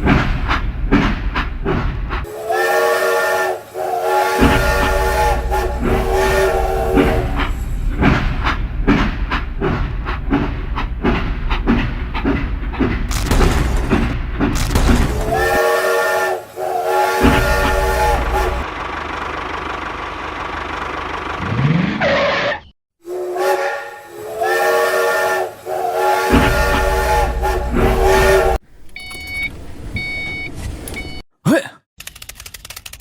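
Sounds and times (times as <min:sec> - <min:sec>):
whistle-like horn: 0:02.3 - 0:07.5, 0:15.3 - 0:18.7, 0:23.0 - 0:28.6.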